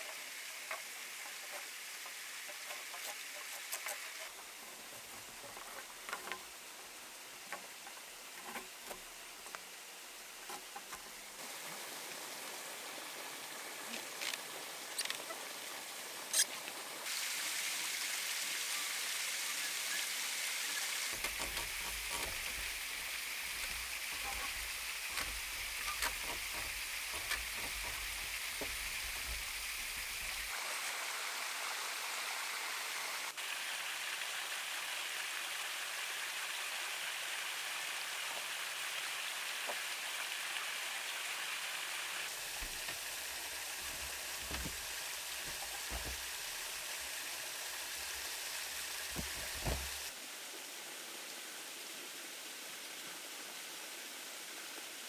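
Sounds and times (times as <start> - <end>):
running water rushing: 0.0 - 50.4
light knocks and taps: 21.2 - 30.5, 42.4 - 47.2, 47.9 - 50.1.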